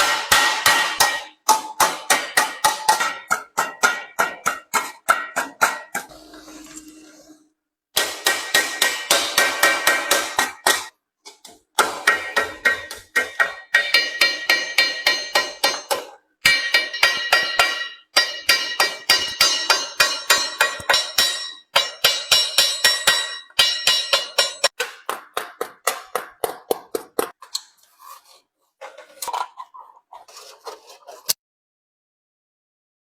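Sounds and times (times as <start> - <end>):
hammer blows on sheet metal: 0.0 - 6.1, 8.0 - 10.9, 11.8 - 26.4.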